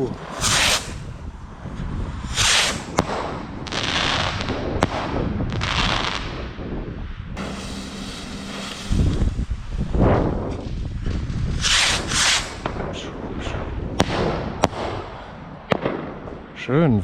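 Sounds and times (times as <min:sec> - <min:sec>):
fireworks hissing bursts: 0:07.4 - 0:10.2, 0:11.6 - 0:12.8
fireworks sharp bangs: 0:07.4 - 0:10.3
fireworks booming: 0:07.4 - 0:13.0.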